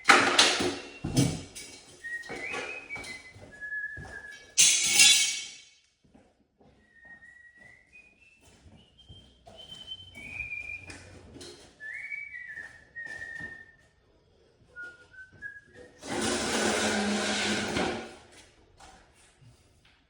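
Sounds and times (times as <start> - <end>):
person whistling a slow tune: 2.0 - 4.6, 6.8 - 11.2, 11.8 - 13.9, 14.7 - 16.0.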